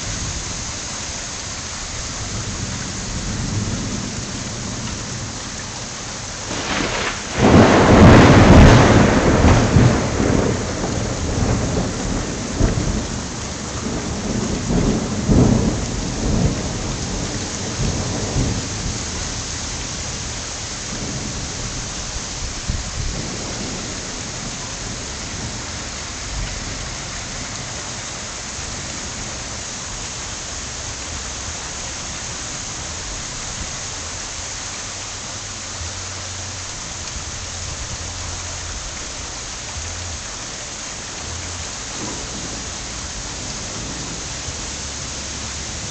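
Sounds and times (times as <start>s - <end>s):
steady rain falling: 0.0s - 45.9s
thunder rumbling: 2.1s - 30.0s, 41.2s - 45.9s.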